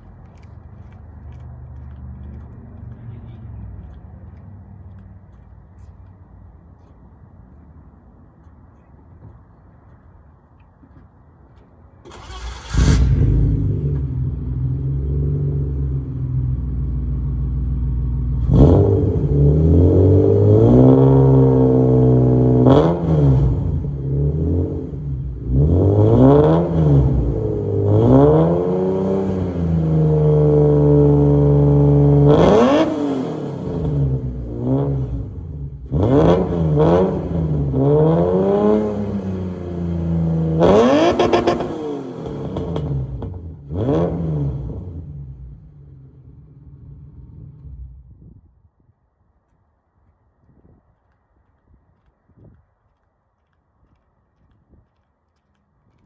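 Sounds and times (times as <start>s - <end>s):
engine revving in short blips: 12.0s - 15.8s
car engine starting: 12.0s - 48.2s.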